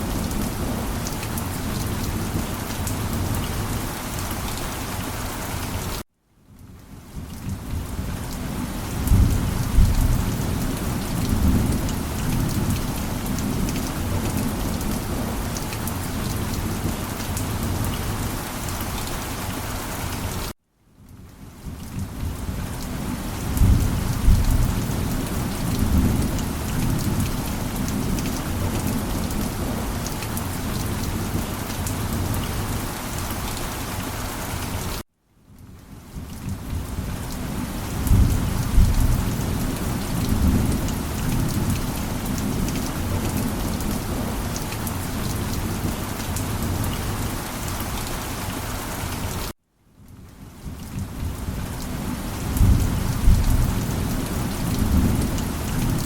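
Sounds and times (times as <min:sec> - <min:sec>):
heavy rain: 0:00.0 - 0:06.0, 0:06.6 - 0:35.0, 0:35.6 - 0:56.0
low rolls of thunder: 0:09.0 - 0:15.4, 0:23.4 - 0:29.9, 0:52.5 - 0:56.0.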